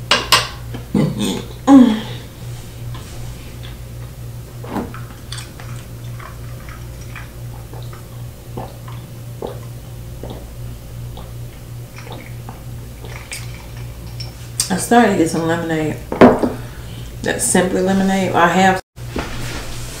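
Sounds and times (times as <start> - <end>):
low hum: 0.0 - 18.4
person chewing food: 5.0 - 14.6.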